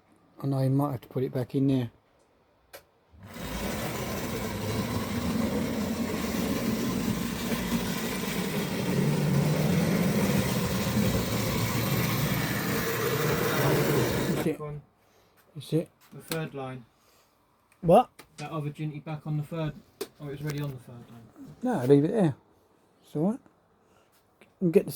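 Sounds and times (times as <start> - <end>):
model train electric motor hum: 3.2 - 14.5
wheel and rail noise: 3.2 - 14.5.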